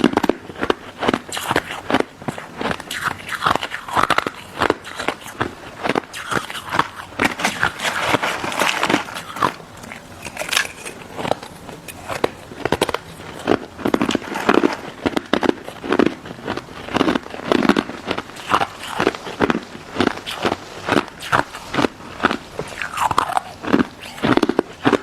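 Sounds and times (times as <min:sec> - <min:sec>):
crunching ice dessert: 0:00.0 - 0:25.0.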